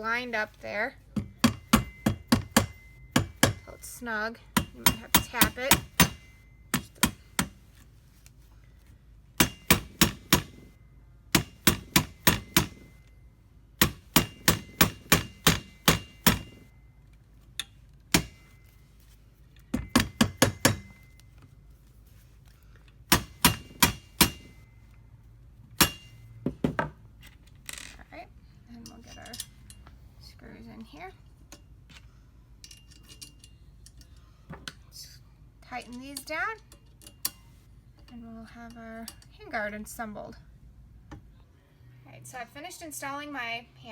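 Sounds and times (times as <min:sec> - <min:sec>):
hammer tapping metal part: 0:01.1 - 0:07.8, 0:09.4 - 0:13.1, 0:13.8 - 0:16.7, 0:17.6 - 0:18.8, 0:19.6 - 0:21.2, 0:23.1 - 0:24.7, 0:25.8 - 0:26.9.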